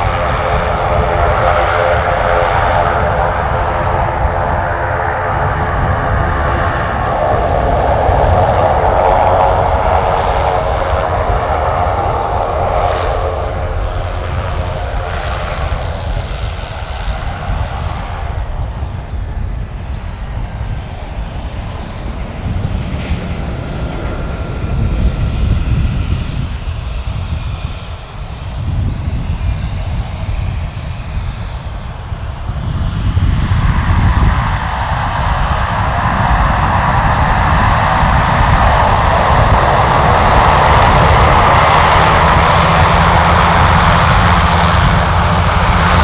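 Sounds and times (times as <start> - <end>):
aircraft engines rumbling: 0.0 - 46.0
high engine whine: 0.0 - 46.0.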